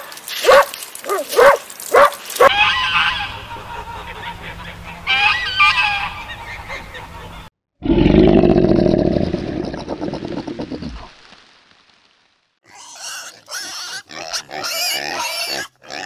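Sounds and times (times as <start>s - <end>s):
geese honking: 2.5s - 7.5s
low rumbling growl: 7.8s - 11.1s.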